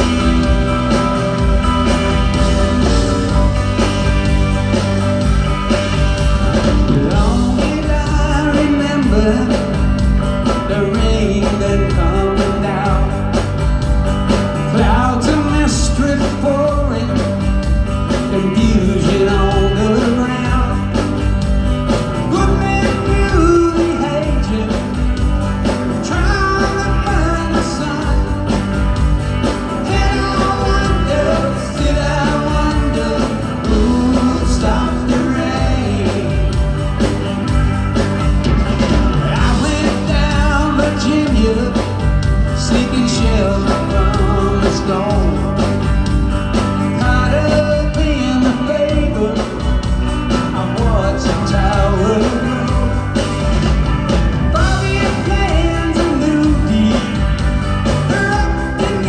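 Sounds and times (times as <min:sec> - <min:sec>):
rock band playing live: 0:00.0 - 0:59.0
man singing: 0:07.0 - 0:13.6, 0:14.6 - 0:21.2, 0:22.2 - 0:25.2, 0:25.9 - 0:28.6, 0:29.7 - 0:36.7, 0:39.2 - 0:45.9, 0:46.8 - 0:53.3, 0:54.5 - 0:59.0.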